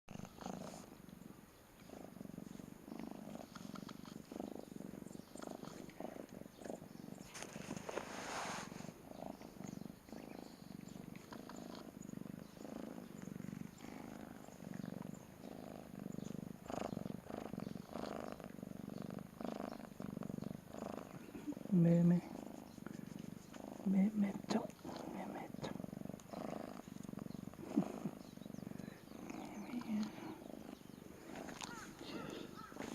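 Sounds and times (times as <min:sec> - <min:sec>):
cat purring: 0:00.1 - 0:32.9
rustling: 0:05.4 - 0:09.0, 0:22.2 - 0:23.9.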